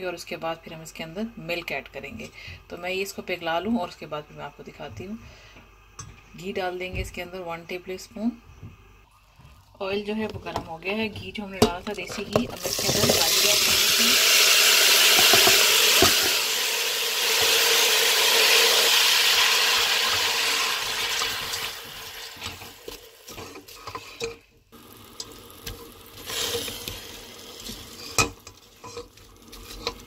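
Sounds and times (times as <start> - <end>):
carrots sizzling in hot ghee: 12.6 - 24.2, 24.8 - 30.0
spatula scraping a pot: 23.2 - 24.4, 27.6 - 30.0.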